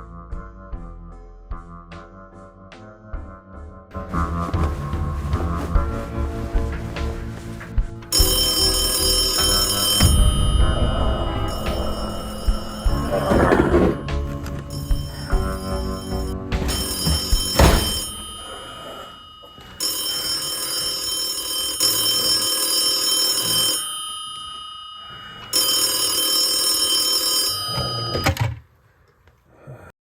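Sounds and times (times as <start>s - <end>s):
background music: 0.0s - 18.8s
telephone ringing: 8.1s - 28.6s.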